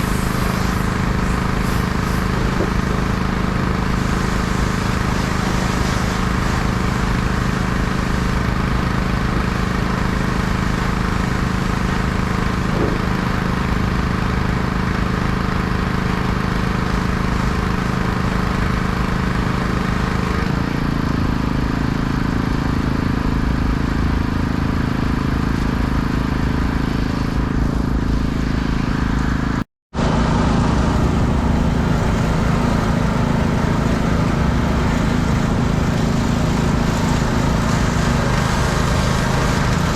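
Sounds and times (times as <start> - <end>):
hiss of water spray: 0.0 - 20.5, 30.8 - 39.9
pressure washer engine running: 0.0 - 39.9.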